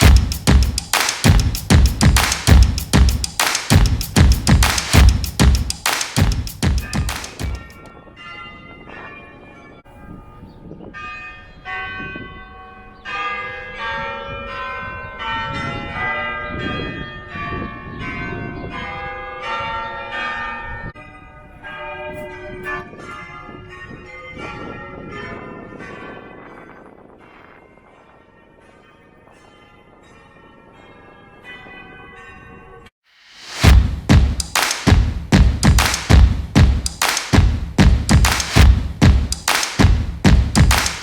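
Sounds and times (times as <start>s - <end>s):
church bells ringing: 7.1s - 32.9s.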